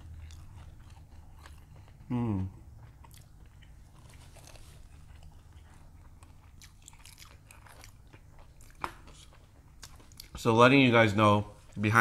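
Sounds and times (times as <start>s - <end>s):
faint low hum: 0.0s - 12.0s
crunching fried batter: 2.8s - 10.8s.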